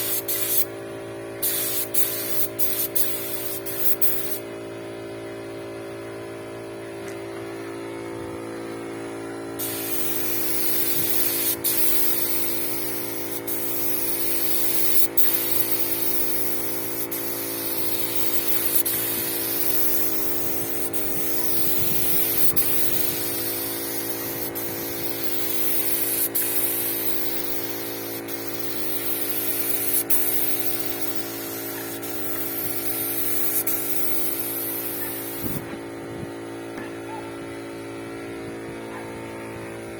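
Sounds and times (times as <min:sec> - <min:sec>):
paint spray gun hissing: 0:00.0 - 0:00.7, 0:01.4 - 0:04.4, 0:09.6 - 0:35.7
electrical hum: 0:00.0 - 0:39.9.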